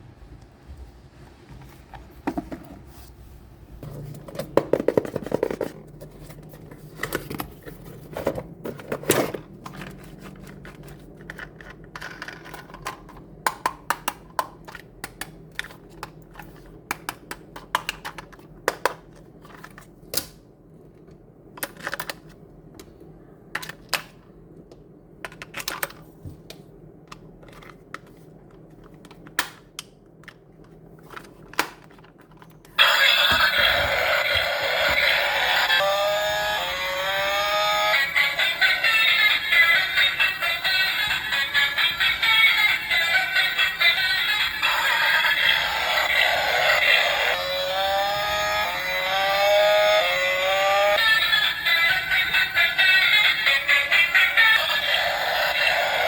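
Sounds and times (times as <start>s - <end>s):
toy trucks clicking and rattling: 8.1s - 19.8s.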